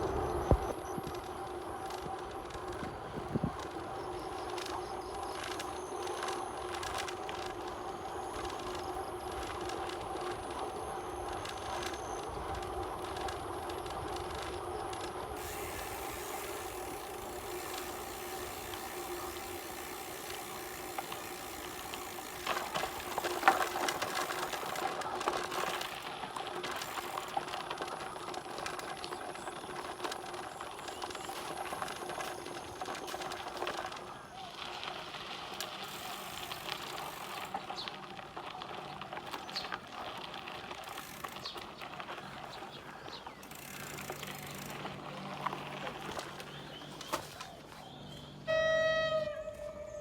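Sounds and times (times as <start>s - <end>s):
bicycle tyres rolling: 0.0s - 50.0s
constant hum: 0.0s - 50.0s
freewheel ratchet ticking: 15.2s - 24.8s.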